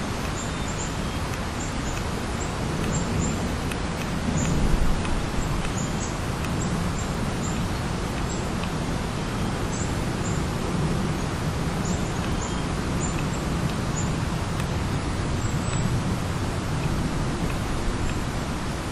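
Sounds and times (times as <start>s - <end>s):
small birds chirping: 0.0s - 18.9s
steady rushing background noise: 0.0s - 18.9s.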